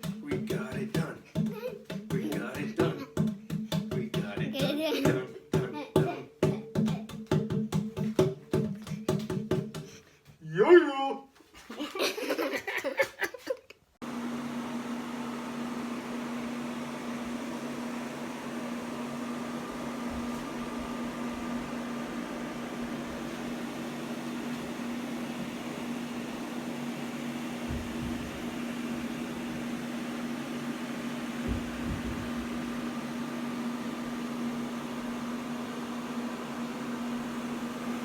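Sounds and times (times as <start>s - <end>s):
steady mechanical hum: 0.0s - 7.2s, 14.0s - 38.0s
music with a voice: 0.1s - 1.4s, 2.0s - 7.0s.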